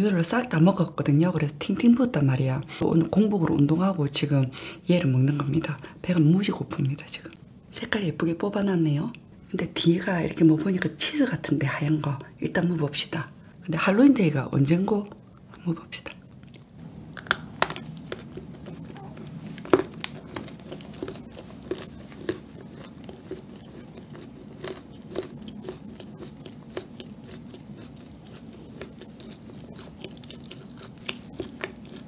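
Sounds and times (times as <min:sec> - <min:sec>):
chewing cake: 0:16.2 - 0:32.0
coating crunching: 0:16.4 - 0:32.0.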